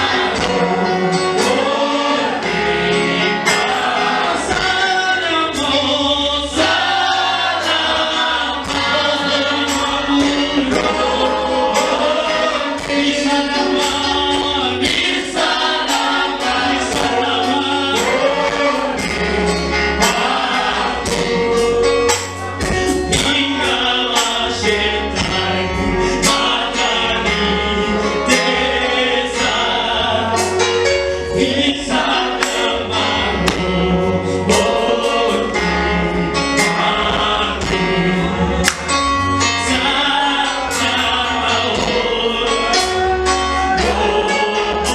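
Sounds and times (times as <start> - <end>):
bass line: 0.0 - 44.9
choir singing gospel music: 0.0 - 44.9
percussion hits: 32.4 - 34.8.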